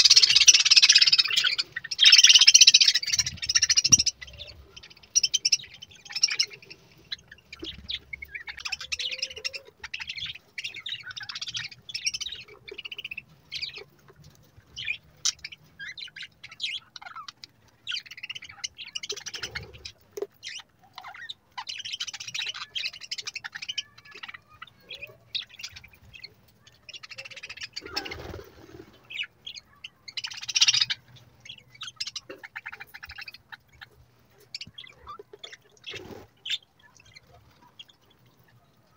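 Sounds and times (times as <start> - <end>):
budgerigars chattering: 0.0 - 13.9, 29.1 - 37.9.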